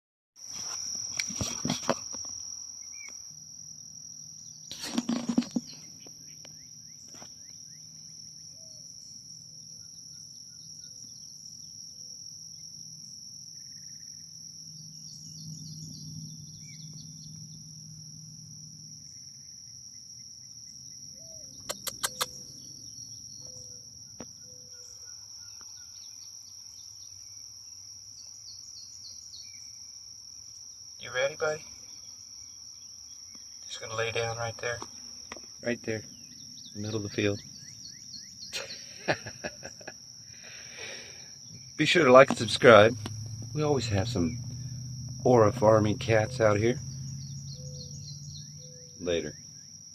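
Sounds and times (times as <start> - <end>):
insects droning: 0.4 - 49.9
short knocks or rustles: 4.7 - 5.8
bird chirps: 14.8 - 17.7, 20.7 - 27.4, 31.0 - 39.2, 40.7 - 49.8.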